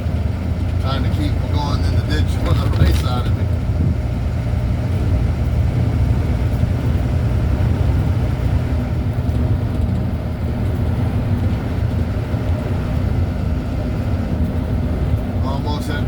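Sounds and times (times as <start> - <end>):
road noise: 0.0 - 16.0
truck engine drone: 0.0 - 16.0.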